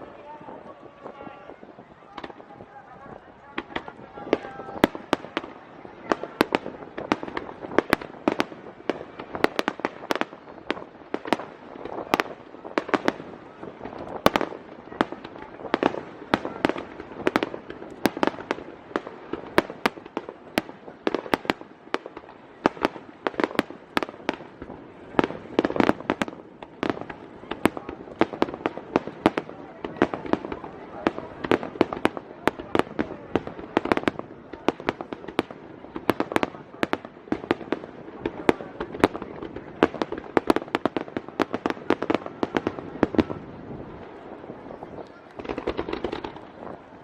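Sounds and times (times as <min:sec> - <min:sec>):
rumble of echoing reports: 0:00.0 - 0:06.4
fireworks shells bursting: 0:45.3 - 0:46.6.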